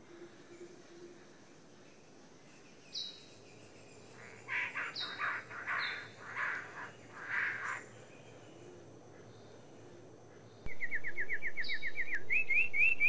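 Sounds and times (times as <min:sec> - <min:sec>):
harsh rasping bird calls: 0:04.1 - 0:07.9
whistled bird notes: 0:10.7 - 0:13.0.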